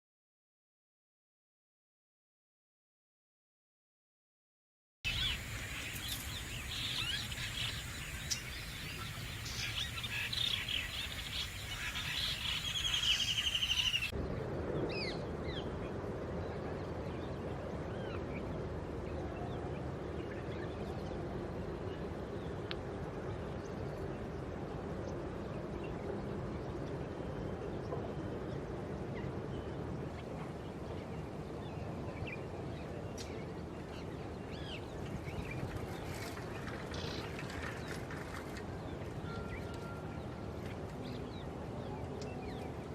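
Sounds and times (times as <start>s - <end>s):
birds calling and chirping: 5.1s - 14.2s.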